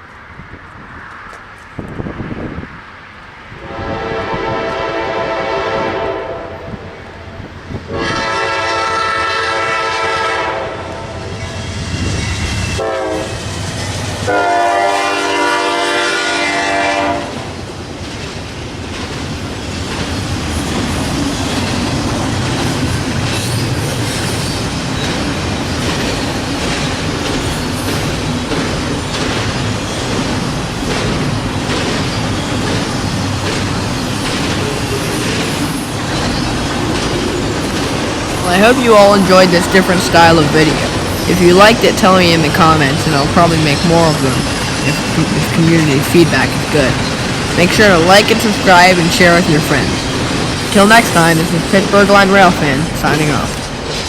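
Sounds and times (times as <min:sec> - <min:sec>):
train rumbling past: 0:00.0 - 0:54.0
locomotive horn blasts: 0:03.6 - 0:06.9, 0:07.9 - 0:11.0, 0:12.8 - 0:13.4, 0:14.3 - 0:17.4
wheels clicking over rail joints: 0:17.8 - 0:45.4.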